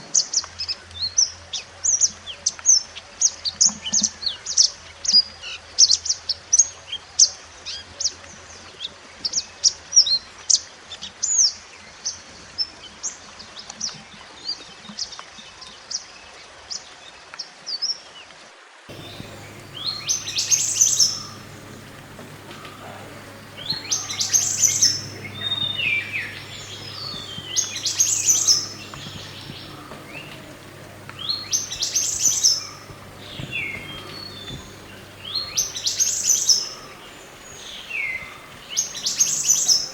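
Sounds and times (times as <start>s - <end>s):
faint low hum: 18.9s - 39.9s
songbird chirping: 18.9s - 39.9s.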